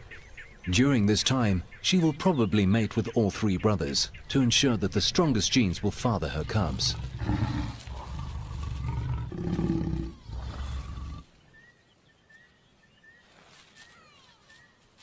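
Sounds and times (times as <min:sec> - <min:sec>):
lion growling: 0:06.4 - 0:11.2
faint bird chirps: 0:10.0 - 0:15.0.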